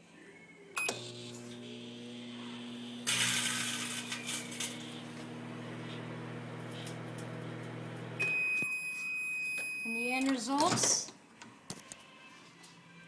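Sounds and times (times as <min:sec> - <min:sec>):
microwave beep: 0:00.8 - 0:02.0, 0:03.1 - 0:04.8, 0:05.7 - 0:10.1
microwave oven humming: 0:00.8 - 0:08.4.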